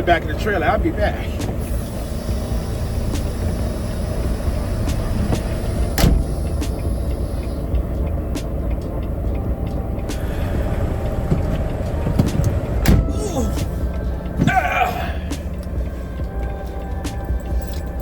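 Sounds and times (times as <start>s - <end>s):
truck engine idling: 0.0s - 18.0s
sharp clicks and knocks: 11.2s - 13.7s.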